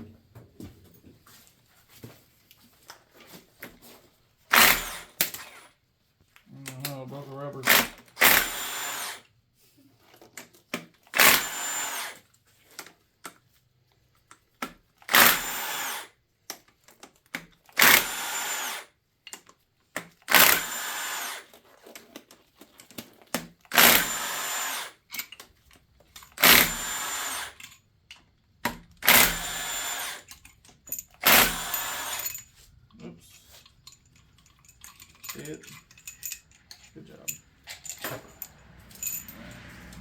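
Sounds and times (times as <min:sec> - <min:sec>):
power drill whining: 0:04.5 - 0:05.7, 0:07.6 - 0:09.3, 0:11.1 - 0:12.2, 0:15.1 - 0:16.1, 0:17.7 - 0:18.9, 0:20.3 - 0:21.6, 0:23.7 - 0:25.1, 0:26.2 - 0:27.8, 0:28.9 - 0:32.7, 0:37.6 - 0:40.0.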